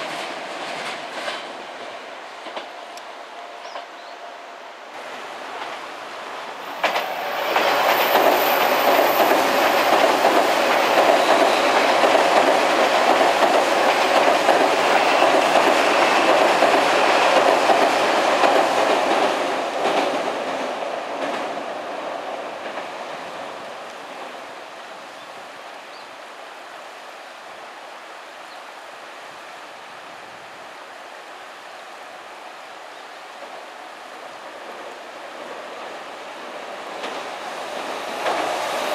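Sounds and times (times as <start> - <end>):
train wheels clattering: 0.0 - 2.8, 6.6 - 21.7, 36.9 - 38.9.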